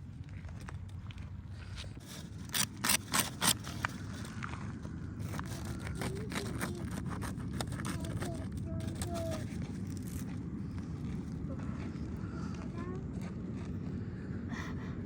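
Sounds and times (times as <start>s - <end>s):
quick scraping strokes: 2.0s - 4.3s
steady low rumble: 8.2s - 15.0s.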